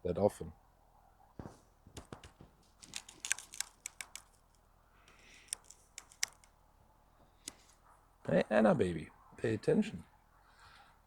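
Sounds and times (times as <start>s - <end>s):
light clicks and taps: 1.4s - 6.5s.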